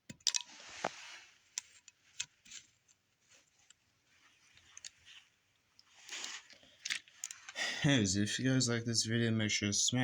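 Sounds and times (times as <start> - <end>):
plastic parts clicking: 0.0 - 0.5, 6.1 - 7.6.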